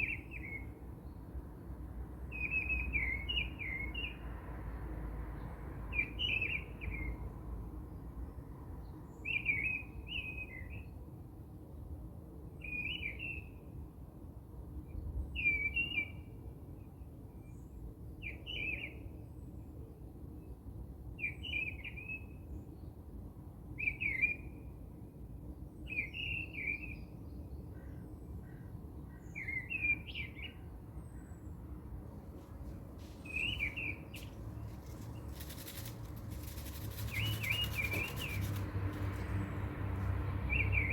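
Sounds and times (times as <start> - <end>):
low background noise: 0.0 - 40.9
bird chirping: 32.6 - 40.9.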